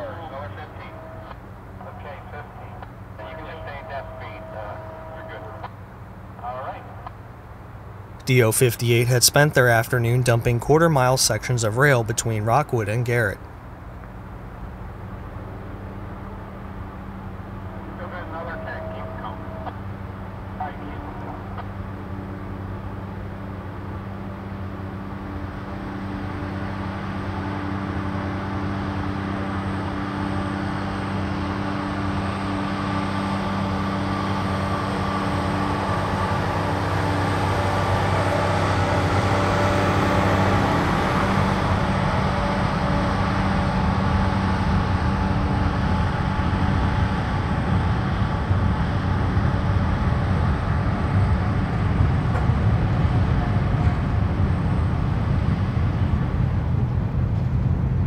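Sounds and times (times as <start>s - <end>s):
diesel engine hum: 0.0s - 58.0s
train wheels rumbling on track: 21.5s - 58.0s.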